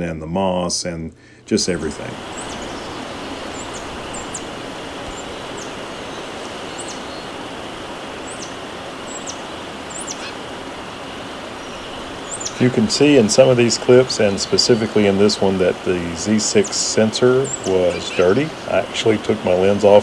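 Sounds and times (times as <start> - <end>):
steady background hiss: 0.0 - 20.0
bird chirping: 1.8 - 20.0.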